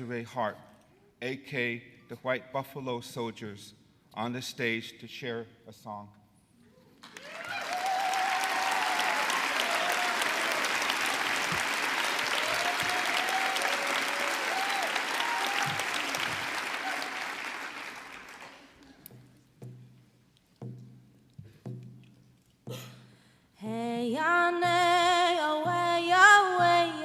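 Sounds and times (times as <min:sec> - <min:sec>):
audience applauding: 0:07.0 - 0:19.1.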